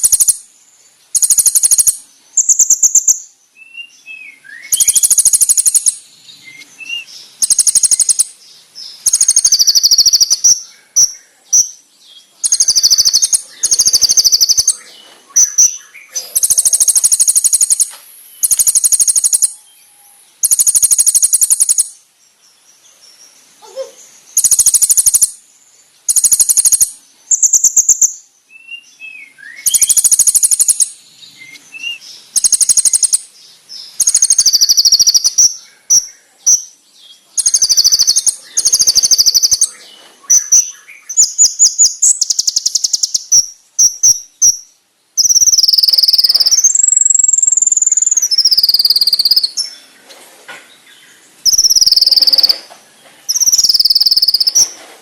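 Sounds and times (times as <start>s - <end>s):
bird buzzy trills: 0.0s - 0.5s, 1.1s - 3.2s, 4.7s - 6.6s, 7.4s - 8.4s, 12.4s - 14.8s, 15.4s - 19.6s, 20.4s - 22.0s, 23.6s - 25.4s, 26.0s - 28.2s, 29.6s - 31.0s, 31.9s - 33.3s, 33.9s - 36.0s, 37.4s - 39.7s, 45.2s - 49.6s, 51.4s - 52.7s, 53.3s - 54.8s
insect-like rattles: 0.0s - 0.5s, 1.1s - 3.2s, 4.7s - 6.0s, 7.4s - 8.3s, 9.0s - 10.5s, 12.4s - 14.8s, 16.3s - 19.6s, 20.4s - 21.9s, 24.4s - 25.4s, 26.1s - 28.0s, 29.6s - 30.9s, 32.3s - 33.2s, 33.9s - 35.4s, 37.4s - 39.7s, 45.2s - 49.6s, 53.3s - 55.0s.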